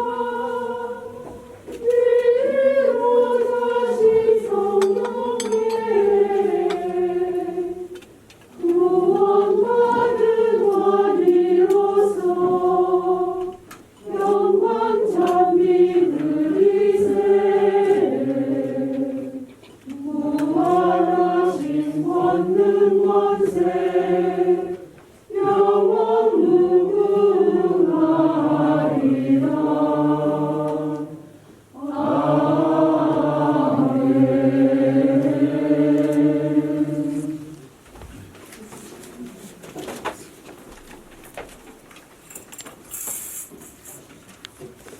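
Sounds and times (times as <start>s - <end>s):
choir singing a hymn: 0.0s - 37.8s.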